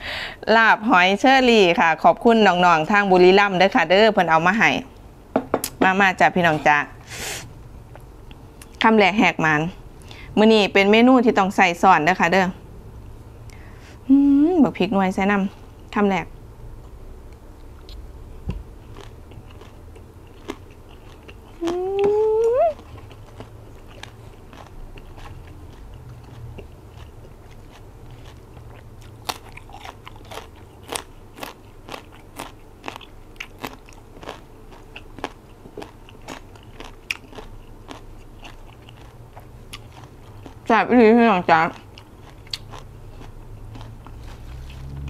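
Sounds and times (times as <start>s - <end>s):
sharp chewing crunches: 18.8s - 40.7s, 41.6s - 45.0s
mouth chewing: 18.9s - 40.7s, 41.5s - 45.0s
person humming mmm: 21.6s - 22.8s.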